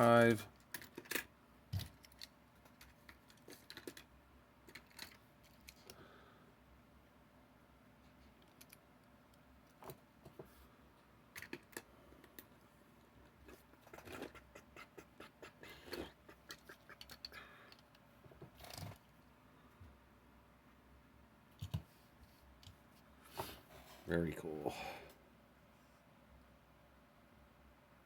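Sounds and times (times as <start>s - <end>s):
toys and plastic cases clicking: 0.5s - 6.0s, 11.3s - 12.5s, 15.9s - 19.0s.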